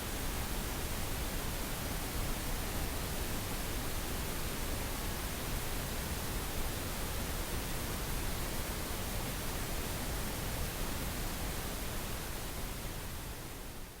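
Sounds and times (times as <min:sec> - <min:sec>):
pink noise hiss: 0:00.0 - 0:14.0.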